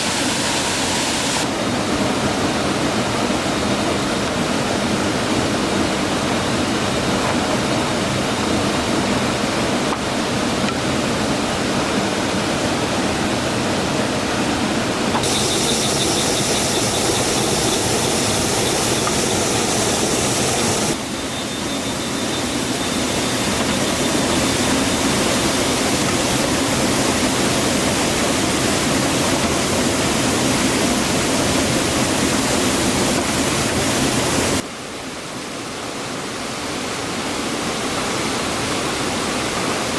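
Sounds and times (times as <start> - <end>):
waterfall rushing water: 0.0 - 7.1, 14.8 - 39.9
high thin whine: 15.2 - 29.5.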